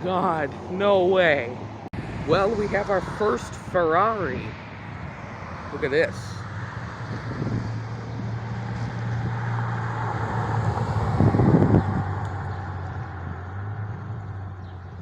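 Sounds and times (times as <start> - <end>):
car driving past: 2.0 - 14.9.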